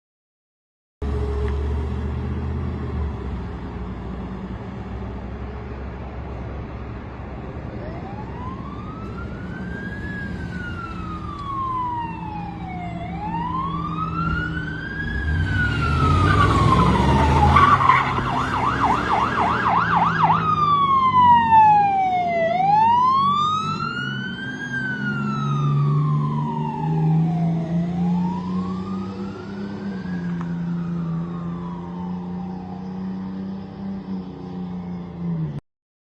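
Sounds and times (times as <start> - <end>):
truck engine rumbling: 1.0 - 35.4
fire engine siren wailing: 7.6 - 35.4.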